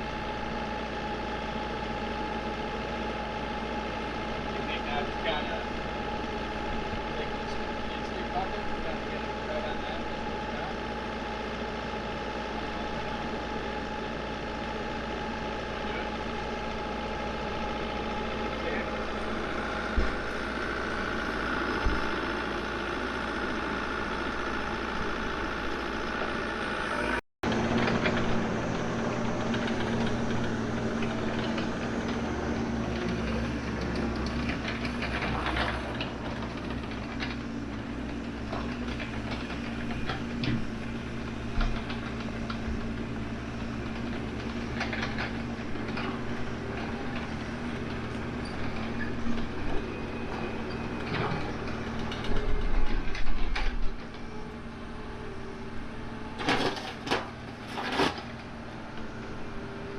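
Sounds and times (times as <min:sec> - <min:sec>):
excavator engine running: 0:00.0 - 0:59.9
metallic clanks and scrapes: 0:56.4 - 0:58.4.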